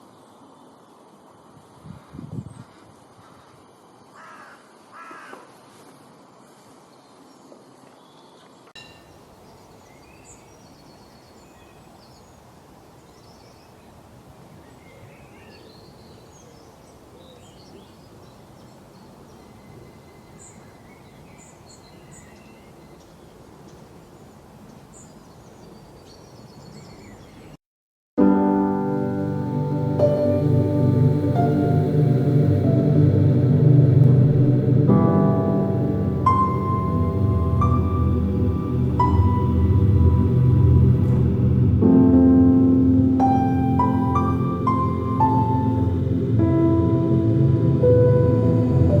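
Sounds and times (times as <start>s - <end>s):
background hiss: 0.0s - 27.3s, 28.2s - 49.0s
small birds chirping: 14.7s - 27.6s.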